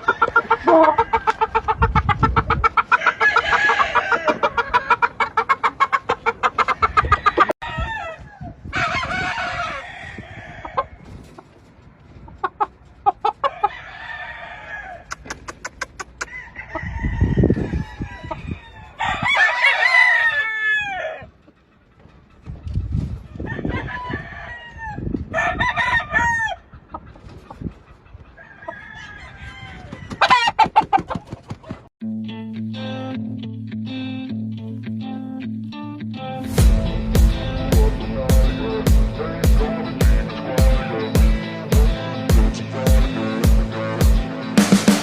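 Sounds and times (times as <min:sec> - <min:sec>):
roosters crowing: 0:00.0 - 0:01.9, 0:02.6 - 0:11.2, 0:13.2 - 0:21.4, 0:23.2 - 0:26.8, 0:28.3 - 0:31.3
chickens clucking: 0:00.0 - 0:31.9
low rumbles: 0:36.4 - 0:44.2.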